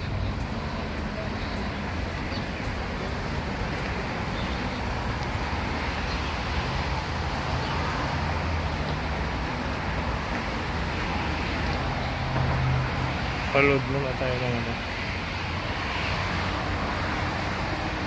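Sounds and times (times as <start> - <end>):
traffic noise with engine rumble: 0.0 - 18.0.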